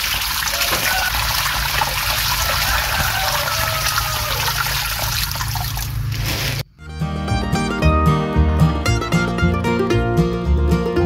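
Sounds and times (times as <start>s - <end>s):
low steady pump hum: 0.0s - 6.2s
water trickling into pond: 0.0s - 6.6s
plucked-string music: 6.8s - 11.0s.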